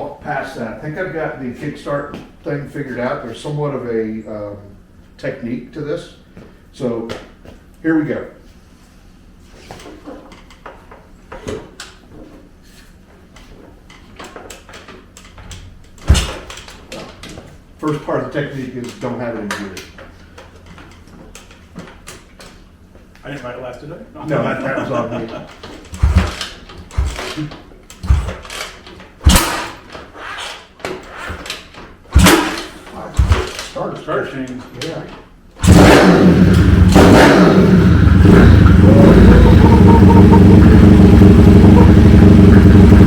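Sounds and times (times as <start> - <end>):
engine kickstarter clunking: 25.7 - 29.9, 32.1 - 33.8, 35.6 - 43.0
kickstarter heavy low thump: 26.0 - 27.4, 28.0 - 28.4, 32.1 - 32.6.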